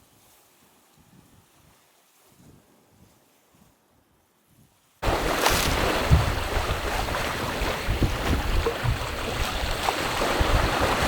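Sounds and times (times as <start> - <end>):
wind buffeting microphone: 4.5 - 11.0
low thuds: 5.0 - 11.0
water rushing along hull: 5.0 - 11.0.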